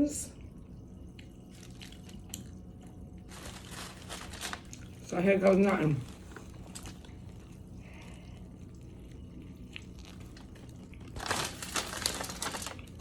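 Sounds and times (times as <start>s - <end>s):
person chewing sandwich: 1.1s - 5.1s, 6.1s - 13.0s
crinkling: 1.5s - 7.6s, 8.7s - 13.0s.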